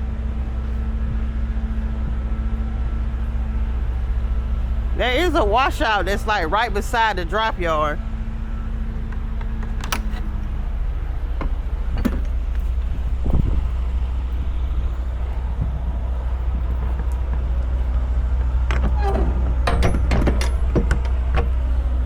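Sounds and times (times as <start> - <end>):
diesel truck engine running: 0.0 - 22.0
clicks and rattles: 18.4 - 21.6.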